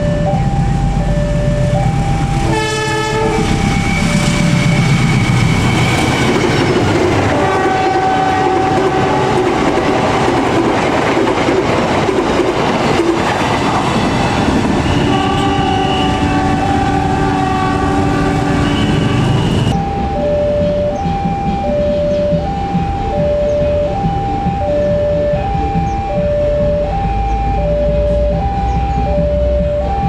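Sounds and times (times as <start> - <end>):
train rumbling and clattering: 0.0 - 30.0
two-tone level-crossing alarm: 0.0 - 30.0
train horn blasts: 1.7 - 10.2, 13.8 - 20.0.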